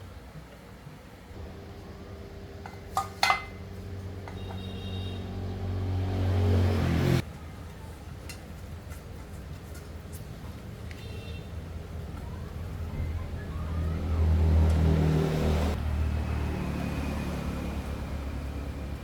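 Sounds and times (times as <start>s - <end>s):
small engine revving and idling: 1.4s - 7.3s, 12.8s - 19.0s.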